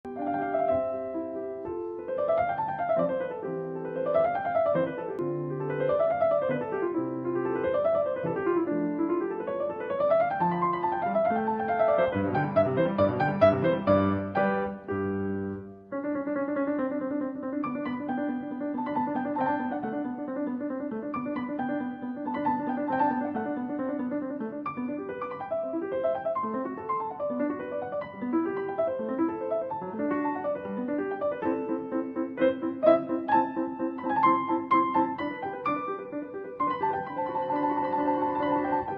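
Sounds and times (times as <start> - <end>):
piano arpeggios: 0.0 - 38.9.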